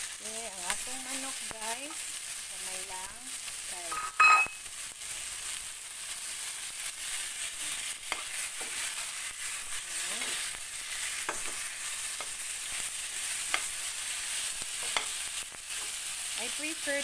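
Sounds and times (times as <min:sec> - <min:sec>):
chicken sizzling in a pot: 0:00.0 - 0:17.0
spatula scraping a pot: 0:06.9 - 0:16.1.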